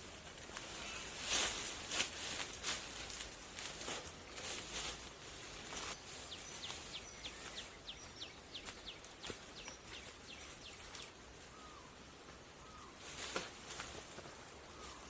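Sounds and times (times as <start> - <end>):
outdoor background hiss: 0.0 - 15.0
scratchy rustles: 0.2 - 7.6.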